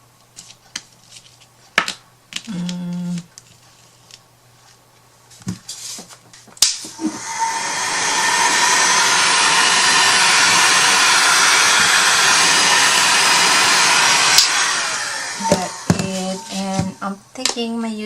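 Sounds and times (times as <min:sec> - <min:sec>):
hot-air blower running: 0:06.6 - 0:17.3
blower switch click: 0:14.3 - 0:14.6.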